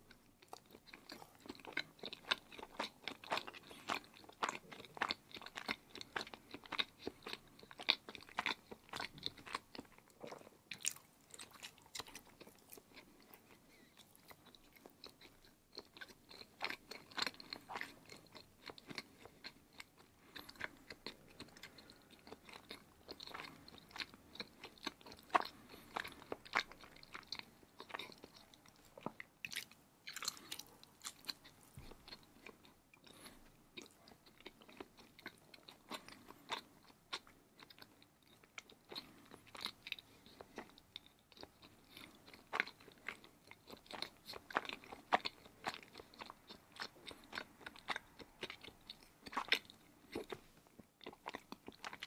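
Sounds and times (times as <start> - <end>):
chewing cheese mouth clicks: 14.2 - 50.4.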